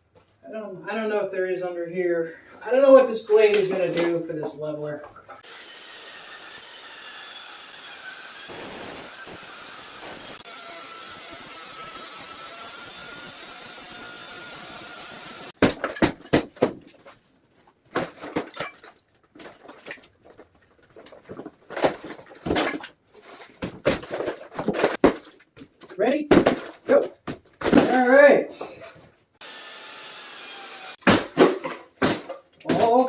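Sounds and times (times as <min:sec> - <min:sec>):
boards cracking and knocking: 0:15.6 - 0:17.1, 0:17.9 - 0:28.2, 0:31.0 - 0:33.0.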